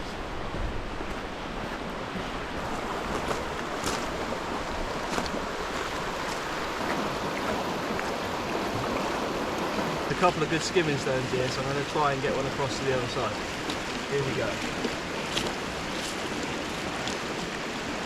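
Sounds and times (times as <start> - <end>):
waterfall roaring: 2.6 - 18.0.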